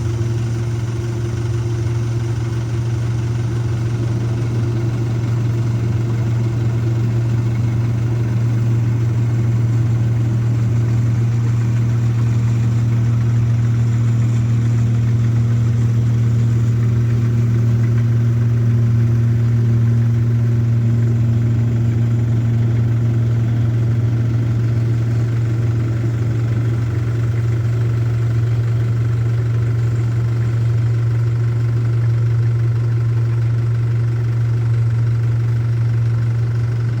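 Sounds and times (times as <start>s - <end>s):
combine harvester engine hum: 0.0s - 37.0s.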